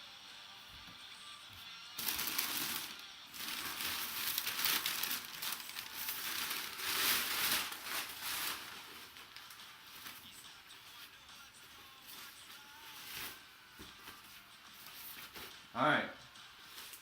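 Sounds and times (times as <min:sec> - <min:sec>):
packaging crinkling and rustling: 0:02.0 - 0:10.3, 0:12.1 - 0:15.5.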